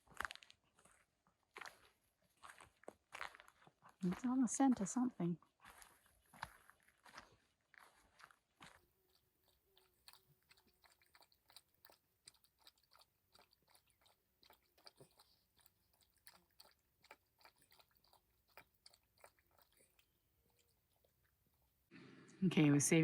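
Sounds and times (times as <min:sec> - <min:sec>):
dog chewing and gnawing: 0:05.6 - 0:21.8.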